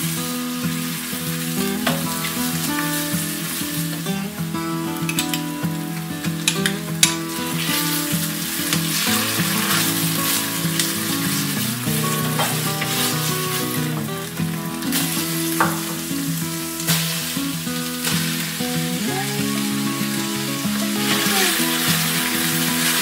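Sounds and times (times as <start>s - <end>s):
onion sizzling in a pot: 0.0s - 23.0s
background music: 0.9s - 23.0s.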